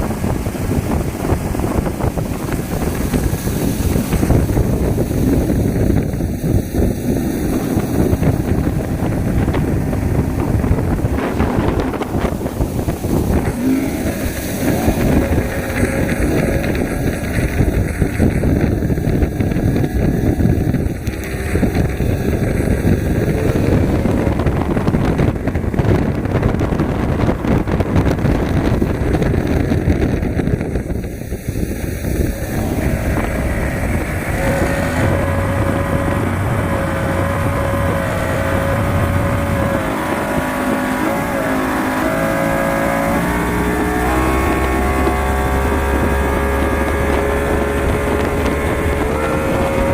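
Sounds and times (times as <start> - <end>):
power boat engine running: 0.0 - 49.9.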